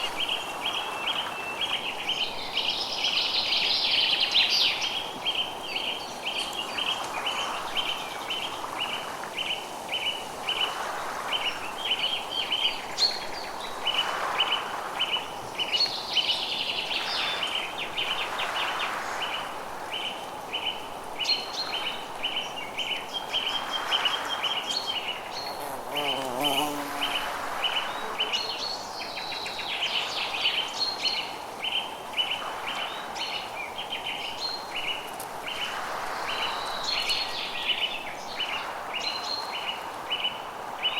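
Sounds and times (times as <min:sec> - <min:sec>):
soft steady hiss: 0:00.0 - 0:40.9
small birds chirping: 0:24.5 - 0:31.2.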